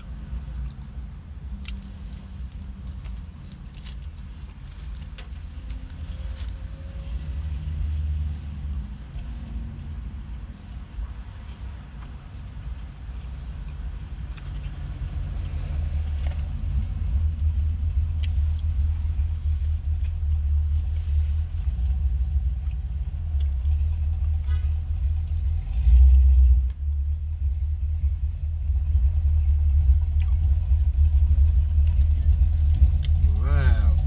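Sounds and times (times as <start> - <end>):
low rumble: 0.0 - 34.0.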